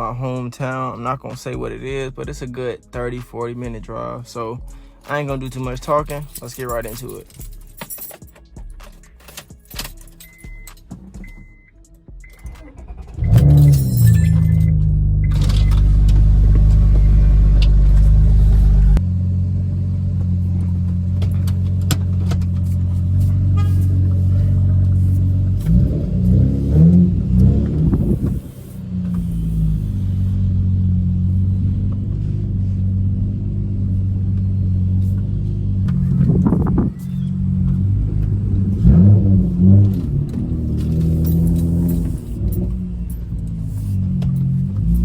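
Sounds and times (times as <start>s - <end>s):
car exhaust drone: 10.3s - 45.0s
engine revving: 12.3s - 45.0s.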